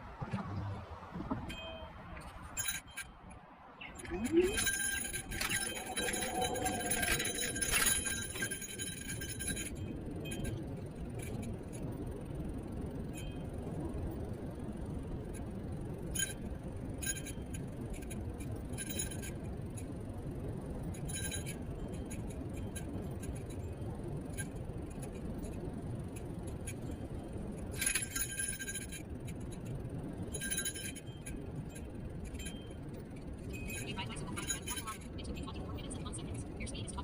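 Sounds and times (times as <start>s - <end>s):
scooter road and wind rumble: 0.0s - 37.0s
metallic clinks from rattling parts: 1.5s - 3.3s, 3.9s - 11.9s, 20.8s - 35.6s.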